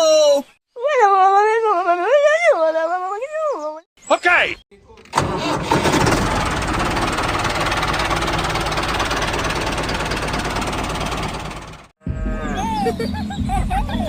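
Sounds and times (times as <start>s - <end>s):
tractor engine knocking: 5.1s - 11.9s.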